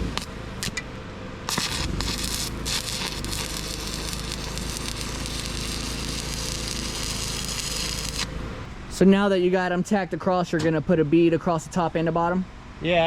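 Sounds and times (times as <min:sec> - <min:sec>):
arc welder crackling: 0:00.0 - 0:08.7.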